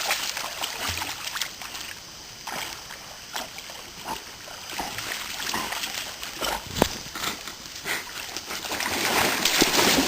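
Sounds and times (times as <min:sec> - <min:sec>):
creek water splashing: 0:00.0 - 0:10.0.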